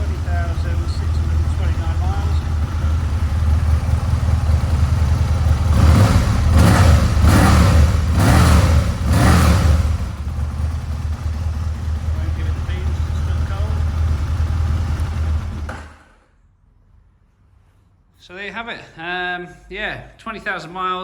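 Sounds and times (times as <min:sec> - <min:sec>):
motorcycle engine idling and blipped: 0:00.0 - 0:16.1.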